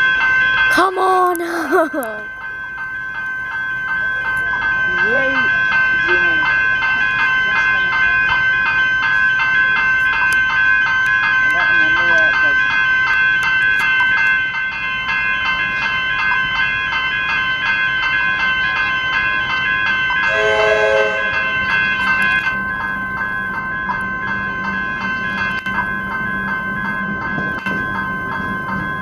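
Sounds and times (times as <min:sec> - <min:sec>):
level-crossing bells ringing: 0:00.0 - 0:29.0
train rumble: 0:00.0 - 0:29.0
train horn blast: 0:20.3 - 0:21.7.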